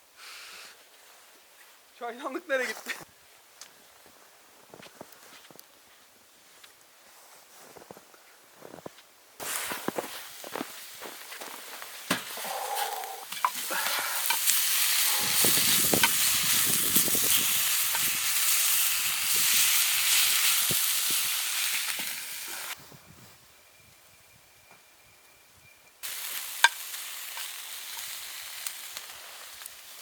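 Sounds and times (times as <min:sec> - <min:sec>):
food sizzling in a hot pan: 0:12.8 - 0:22.8, 0:26.0 - 0:30.0.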